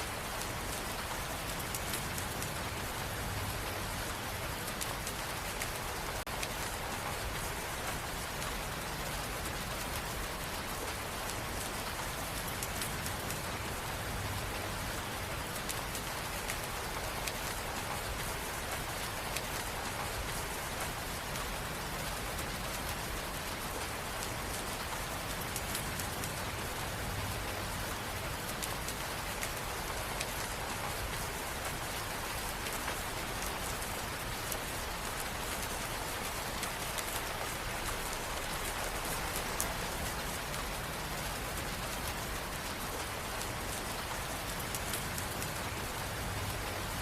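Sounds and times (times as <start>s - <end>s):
raindrop patter: 0.0s - 47.0s.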